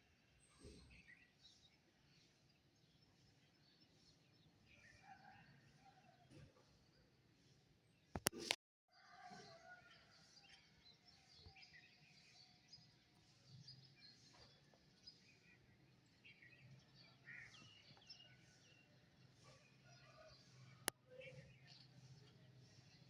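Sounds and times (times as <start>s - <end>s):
small birds chirping: 0.0s - 5.2s, 10.3s - 23.0s.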